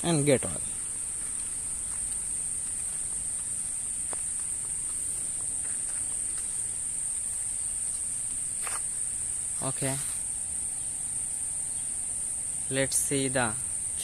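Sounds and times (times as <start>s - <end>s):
insects trilling: 0.0s - 14.0s
faint ticks: 7.8s - 8.9s.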